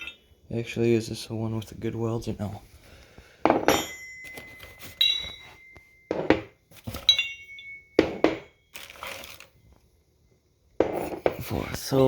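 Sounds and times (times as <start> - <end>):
steel parts clanking: 0.0 - 0.3, 3.5 - 9.0.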